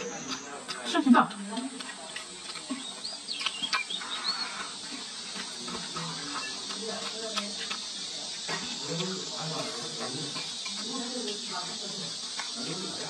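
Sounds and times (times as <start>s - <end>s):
chewing clicks: 0.1s - 11.6s, 12.2s - 13.0s
chopsticks clicking: 3.3s - 4.0s.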